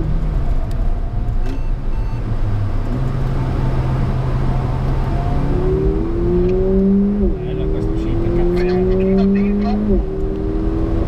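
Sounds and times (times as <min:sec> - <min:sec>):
road and tyre noise: 0:00.0 - 0:11.0
car engine at low revs: 0:02.2 - 0:11.0.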